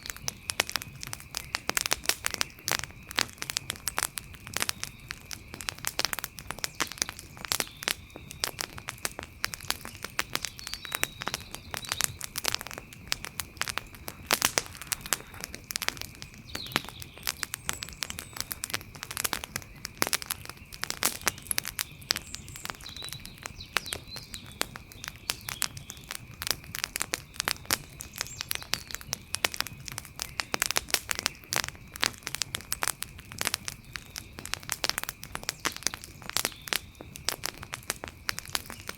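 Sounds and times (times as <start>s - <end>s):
wood campfire crackling: 0.0s - 38.9s
faint chirps: 6.4s - 26.2s.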